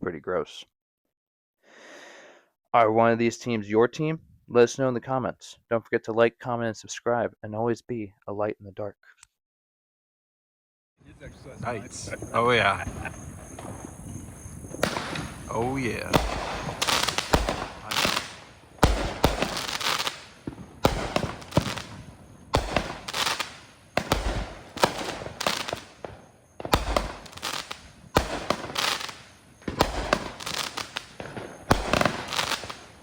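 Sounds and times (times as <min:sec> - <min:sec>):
firework hiss: 0:11.1 - 0:33.0
firework bangs: 0:11.2 - 0:33.0.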